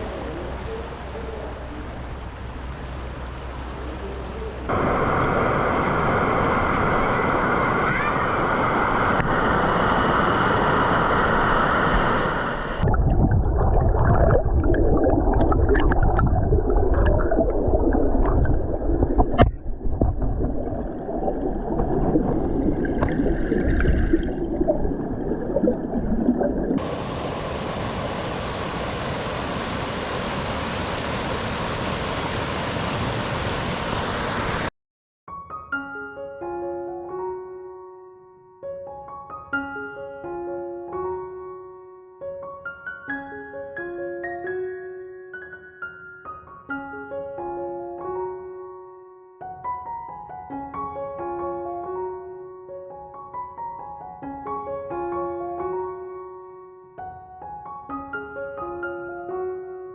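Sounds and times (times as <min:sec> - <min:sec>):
rushing water: 0:00.0 - 0:34.7
muffled low gurgling: 0:12.8 - 0:33.0.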